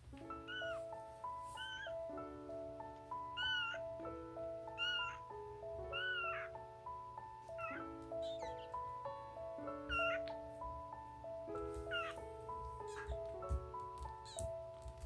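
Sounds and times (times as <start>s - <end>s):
background music: 0.0s - 15.0s
kitten meowing: 0.2s - 2.1s, 3.3s - 4.0s, 4.7s - 6.6s, 7.5s - 8.9s, 9.7s - 10.4s, 11.8s - 14.6s.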